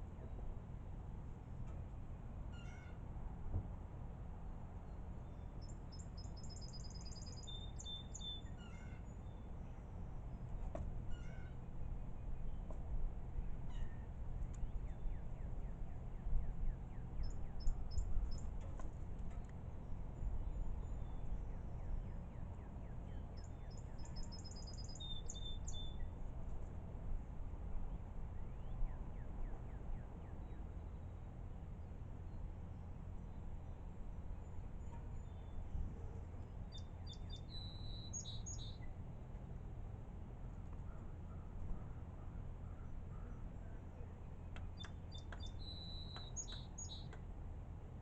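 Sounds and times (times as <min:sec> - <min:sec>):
low background rumble: 0:00.0 - 0:48.0
small birds chirping: 0:05.2 - 0:09.8, 0:20.4 - 0:26.2, 0:36.3 - 0:39.0, 0:42.7 - 0:47.2.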